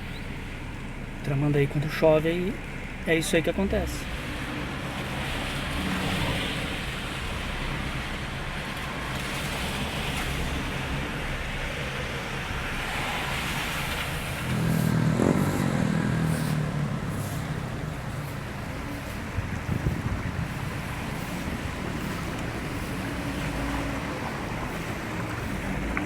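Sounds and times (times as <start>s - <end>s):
traffic on flooded street: 0.0s - 26.0s
vehicle engine passing close: 9.0s - 26.0s.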